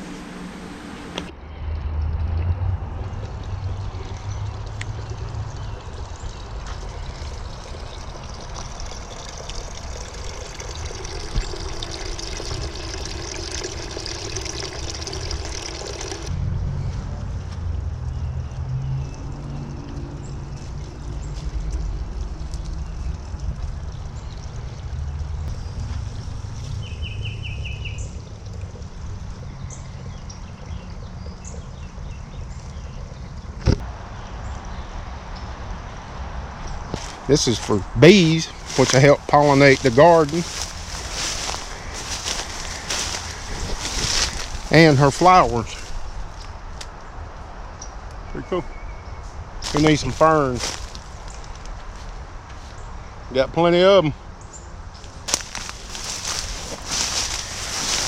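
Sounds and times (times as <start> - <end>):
running water trickling: 2.4 - 16.3, 19.2 - 33.4, 36.9 - 47.2, 49.4 - 52.1, 55.0 - 58.0
wind rumble on microphone: 39.8 - 44.8.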